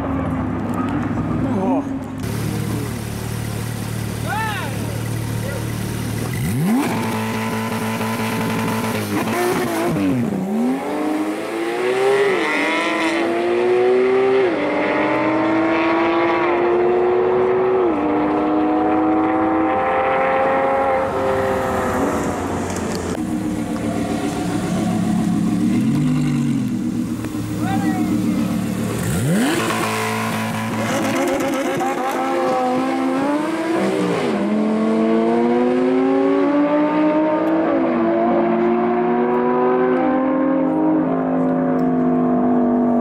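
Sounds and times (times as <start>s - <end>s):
car engine idling: 2.0s - 8.8s, 21.6s - 29.6s
sports car accelerating with upshifts: 5.0s - 43.0s.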